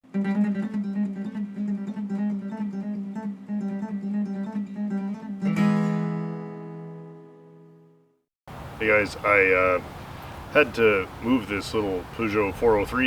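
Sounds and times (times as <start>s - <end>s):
strummed guitar chord: 0.0s - 7.6s
acoustic guitar picking: 0.0s - 7.7s.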